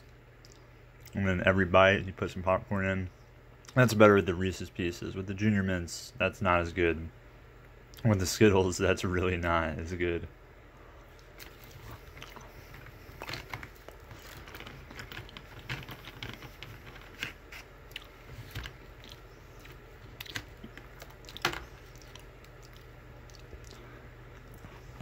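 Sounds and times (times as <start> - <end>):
chewing crunchy candy: 11.0 - 25.0.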